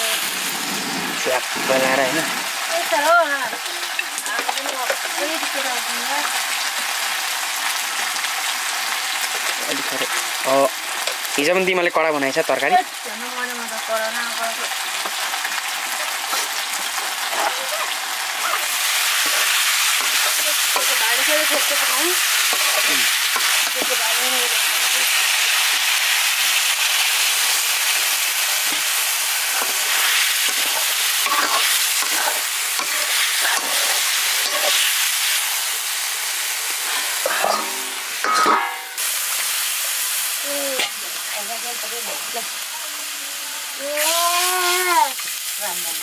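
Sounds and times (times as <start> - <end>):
chicken sizzling in a wok: 0.0 - 46.0
metal ladle scraping a wok: 17.2 - 23.9, 29.5 - 35.4, 36.8 - 39.1.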